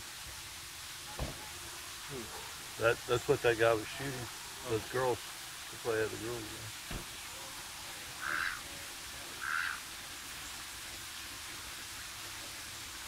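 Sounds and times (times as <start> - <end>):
steady hiss: 0.0 - 13.0
rough bird calls: 8.2 - 8.6, 9.4 - 9.8.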